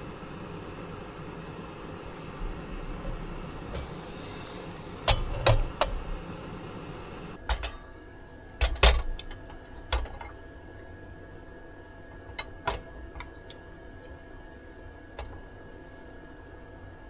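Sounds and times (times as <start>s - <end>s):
steady low hum: 0.0s - 17.0s
sharp irregular clicks and knocks: 2.2s - 6.4s, 8.6s - 10.4s, 12.2s - 14.2s, 15.2s - 15.5s.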